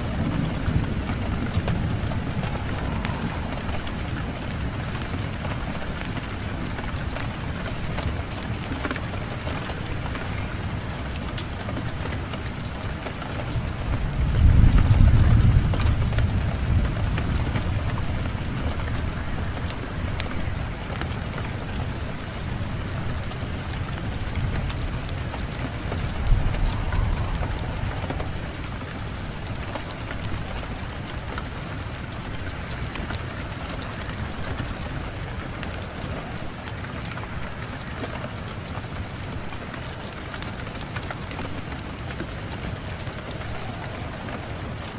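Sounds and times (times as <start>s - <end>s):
wind rushing: 0.0s - 6.7s, 24.4s - 30.9s, 42.6s - 44.9s
fireplace fire crackling: 0.0s - 44.9s
low rumble of wind: 0.0s - 44.9s.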